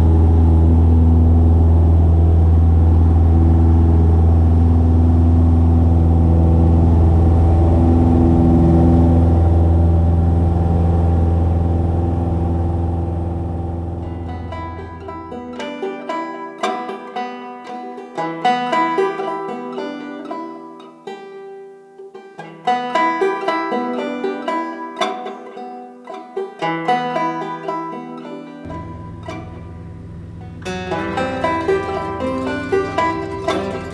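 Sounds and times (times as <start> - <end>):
upbeat plucked string music: 13.9 - 33.9.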